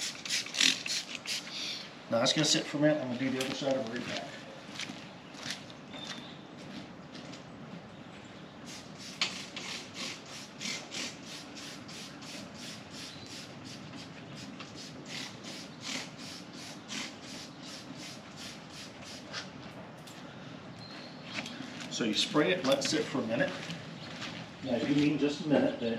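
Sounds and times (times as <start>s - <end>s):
spray bottle squirts hissing: 0.0s - 1.5s.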